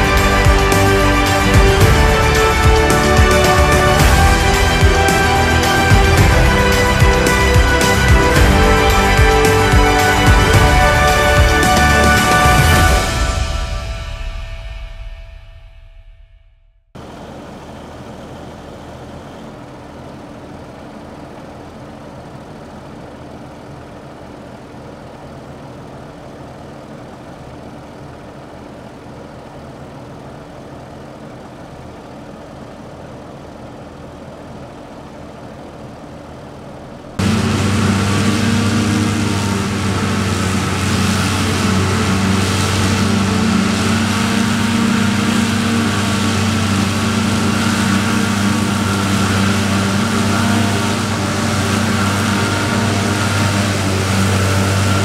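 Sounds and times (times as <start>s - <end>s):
farm machinery diesel engines: 0.0s - 15.0s, 17.0s - 55.0s
louder close engine: 0.0s - 15.3s, 17.0s - 55.0s.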